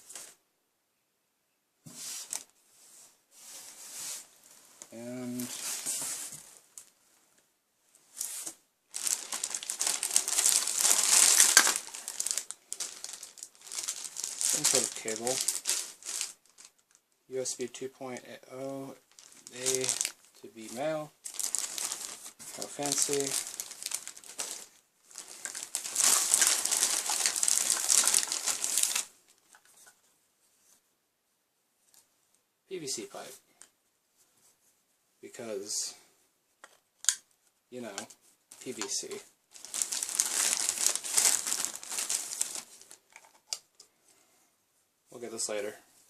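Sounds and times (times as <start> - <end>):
packaging crinkling and rustling: 8.2 - 17.1, 19.0 - 30.0, 37.9 - 43.7.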